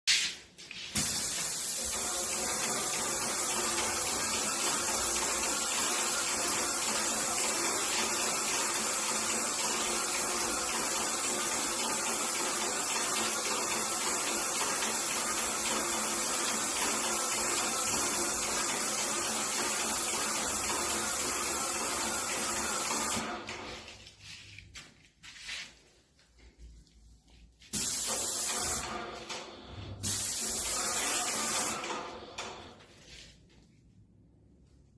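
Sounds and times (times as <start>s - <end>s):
hiss of spray: 0.9s - 23.3s, 27.7s - 29.1s, 29.9s - 32.0s
sprayer pump hum: 1.0s - 23.7s, 30.0s - 32.5s.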